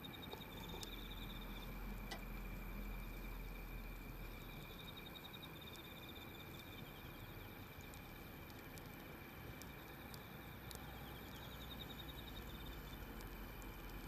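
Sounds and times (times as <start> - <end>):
high insect drone: 0.0 - 14.0
insects chirping in pulsed trills: 0.0 - 14.0
wood fire crackling: 0.0 - 14.0.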